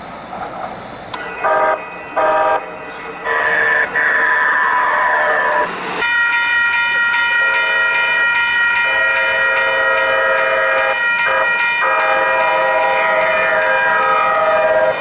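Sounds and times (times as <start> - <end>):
train horn chord: 1.3 - 5.7, 7.4 - 8.1, 8.8 - 15.0.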